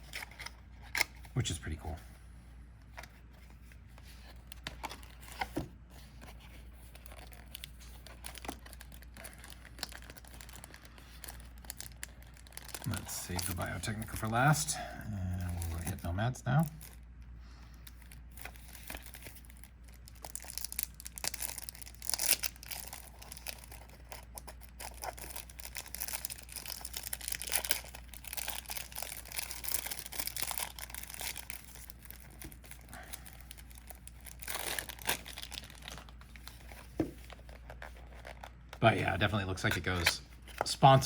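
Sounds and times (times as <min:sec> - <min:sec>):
plastic wrapper tearing and crinkling: 0:06.5 - 0:14.6, 0:15.3 - 0:17.0, 0:17.8 - 0:38.8.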